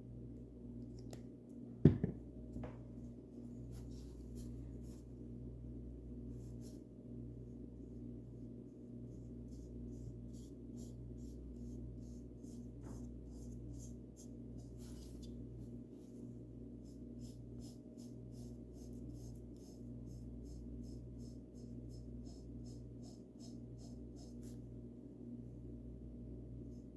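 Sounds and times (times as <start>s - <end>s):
steady low hum: 0.0s - 26.9s
paintbrush strokes: 3.0s - 5.3s, 7.9s - 24.7s.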